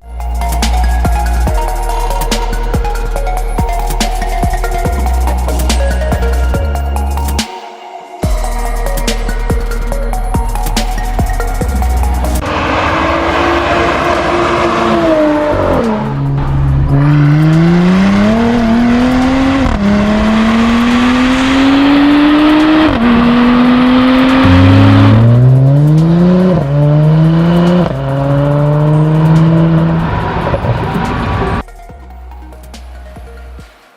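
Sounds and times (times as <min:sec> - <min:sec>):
car engine accelerating hard: 0:11.6 - 0:31.6.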